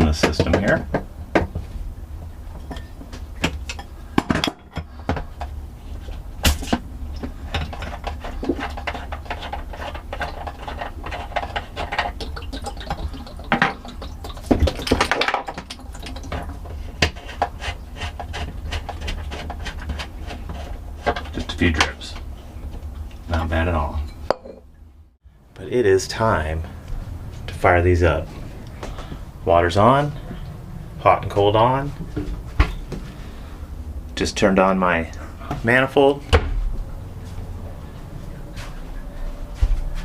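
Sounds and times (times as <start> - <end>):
steady low hum: 0.0 - 40.0
plumbing fittings clicking and knocking: 2.5 - 23.5.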